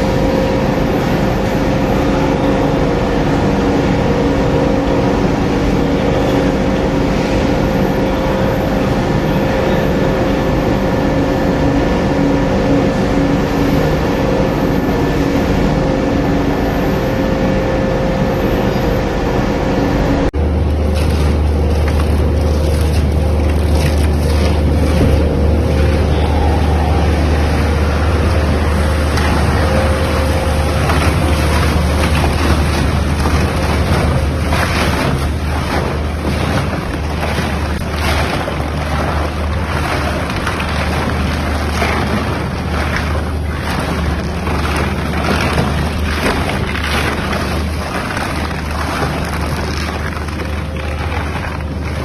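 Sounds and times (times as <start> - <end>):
machine hum: 0.0 - 52.0
tyre grinding and tearing: 20.6 - 52.0.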